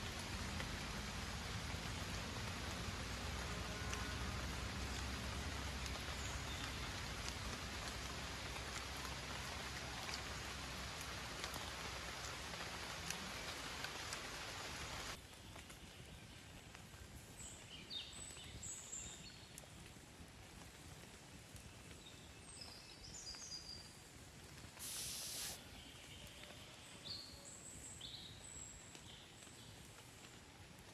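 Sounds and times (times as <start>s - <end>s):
raindrops ticking: 0.0s - 18.5s
steady rain hissing: 0.0s - 30.9s.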